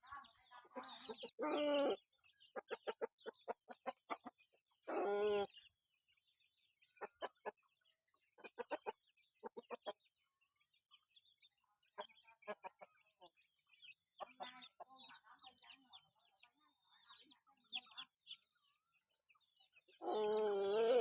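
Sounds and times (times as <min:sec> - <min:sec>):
doves calling: 0:00.0 - 0:05.8, 0:17.0 - 0:21.0.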